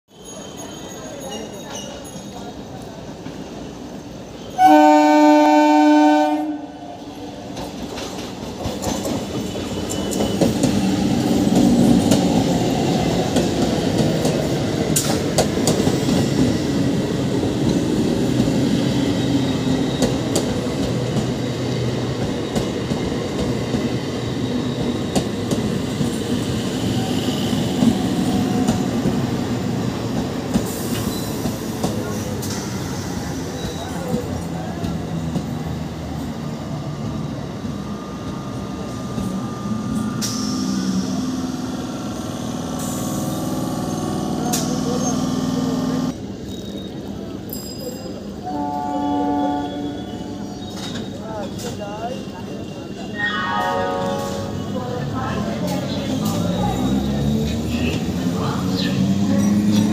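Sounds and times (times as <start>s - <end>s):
train horn blast: 4.6s - 7.0s, 48.4s - 50.5s, 53.4s - 54.8s
train wheels rumbling on rails: 6.4s - 48.6s, 49.8s - 53.0s, 54.1s - 59.9s.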